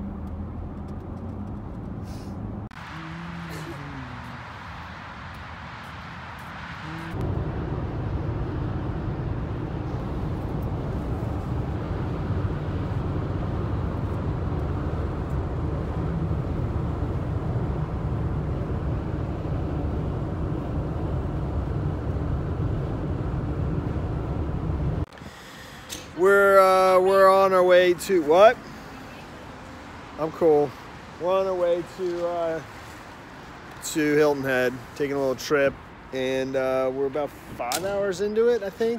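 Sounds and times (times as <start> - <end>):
car road and wind noise from inside: 3.8 - 25.1.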